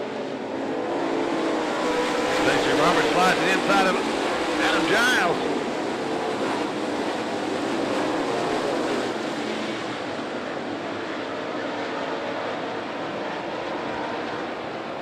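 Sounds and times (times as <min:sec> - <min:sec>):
race car engines running hard: 0:00.0 - 0:15.0.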